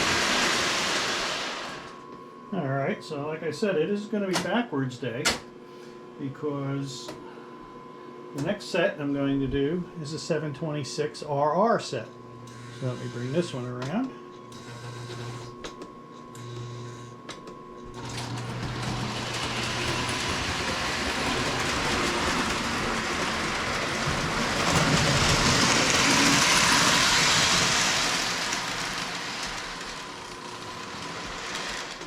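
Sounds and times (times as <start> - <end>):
toy train rattling on rails: 18.2 - 32.0.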